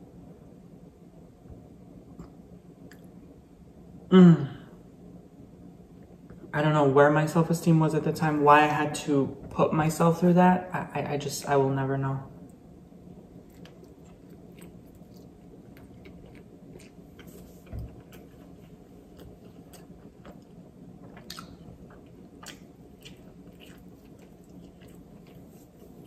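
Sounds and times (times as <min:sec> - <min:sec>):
faint chewing: 0:13.2 - 0:26.0.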